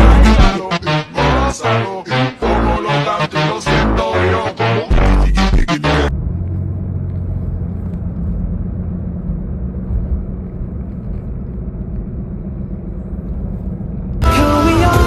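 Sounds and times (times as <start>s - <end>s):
vehicle engine running: 3.7s - 14.4s.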